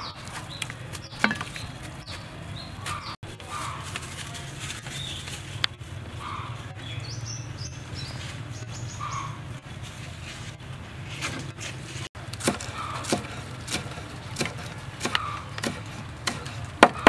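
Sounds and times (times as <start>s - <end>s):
small birds chirping: 0.0s - 10.5s, 12.2s - 16.8s.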